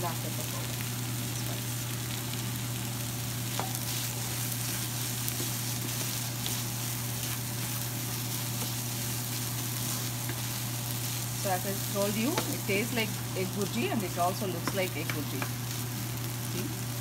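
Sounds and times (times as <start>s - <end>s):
food sizzling in a pan: 0.0s - 17.0s
steady low hum: 0.0s - 17.0s
wooden spatula scraping: 3.5s - 15.9s
spatula taps: 14.6s - 15.6s.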